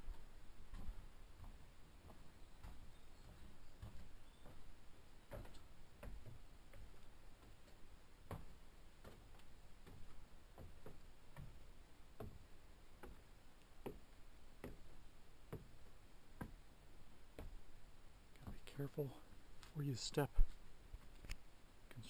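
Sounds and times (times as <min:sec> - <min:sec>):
footsteps walking: 0:00.0 - 0:11.6.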